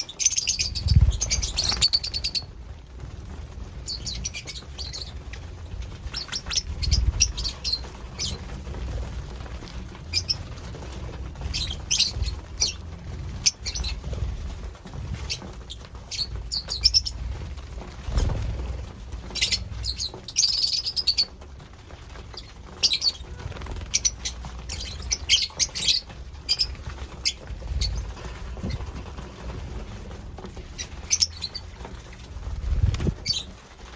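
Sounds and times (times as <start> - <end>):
lovebirds chirping: 0.0 - 2.5, 3.8 - 8.5, 19.3 - 21.3, 22.3 - 28.8, 30.8 - 31.8
low bumps and rustling: 24.7 - 33.5.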